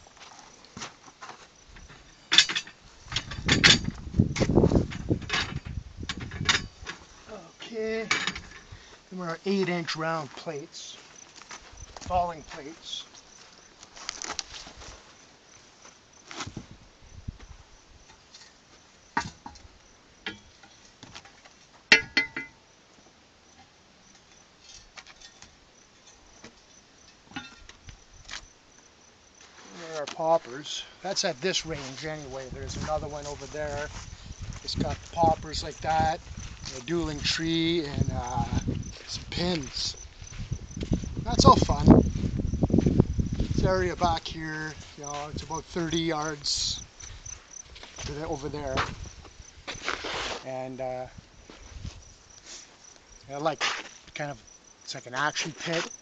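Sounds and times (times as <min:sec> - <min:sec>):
metallic clanks and clinks: 0:01.8 - 0:04.0, 0:04.9 - 0:07.0, 0:08.0 - 0:08.7, 0:21.9 - 0:22.6, 0:24.3 - 0:26.2, 0:27.0 - 0:27.7
metal rattling and scraping: 0:01.8 - 0:07.1, 0:08.0 - 0:08.7.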